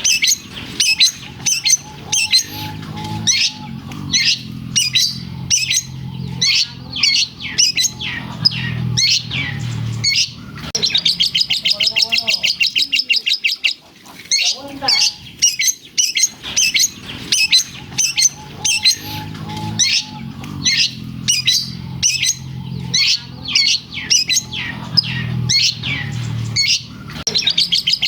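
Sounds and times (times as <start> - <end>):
shrike singing chattering calls: 0.0 - 28.0.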